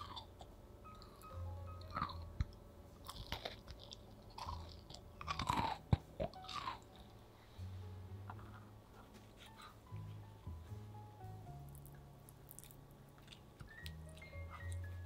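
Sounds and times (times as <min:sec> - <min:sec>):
person chewing crunchy cookie: 0:00.0 - 0:07.2, 0:11.7 - 0:15.0.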